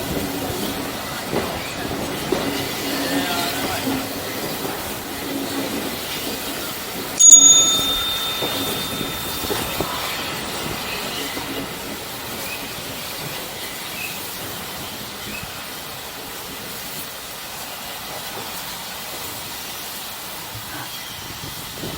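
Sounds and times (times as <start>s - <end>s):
steam train rumbling: 0.0s - 7.2s
sharp metallic clang: 7.2s - 10.1s.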